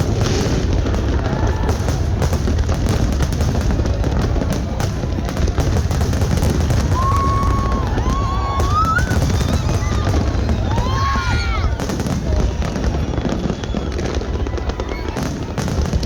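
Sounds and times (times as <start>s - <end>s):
fireworks bangs and crackles: 0.0s - 16.0s
whistle tone: 8.6s - 11.4s, 12.9s - 14.2s.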